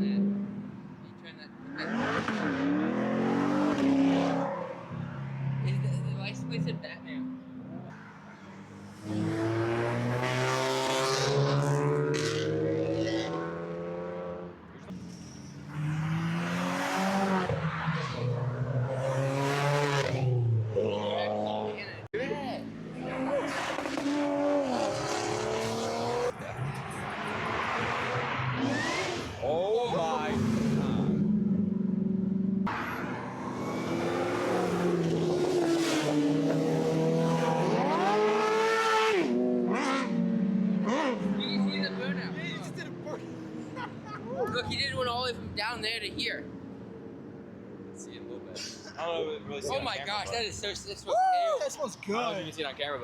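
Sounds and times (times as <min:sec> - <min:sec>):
car engines accelerating past: 0:01.6 - 0:05.9, 0:07.2 - 0:21.8, 0:22.8 - 0:44.5.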